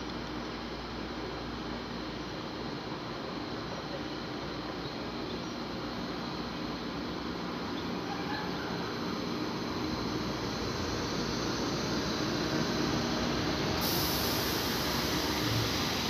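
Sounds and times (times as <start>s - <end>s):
electric train rolling past: 1.4s - 16.0s
high hiss: 10.2s - 16.0s.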